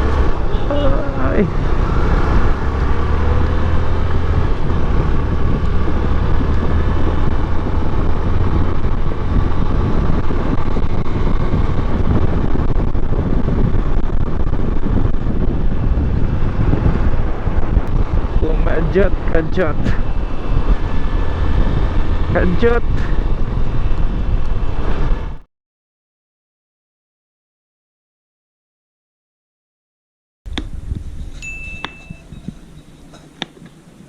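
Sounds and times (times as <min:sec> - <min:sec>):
motorcycle engine: 0:00.0 - 0:25.4
road noise: 0:00.0 - 0:25.4, 0:30.5 - 0:34.0
wind buffeting microphone: 0:00.0 - 0:25.4, 0:30.5 - 0:34.0.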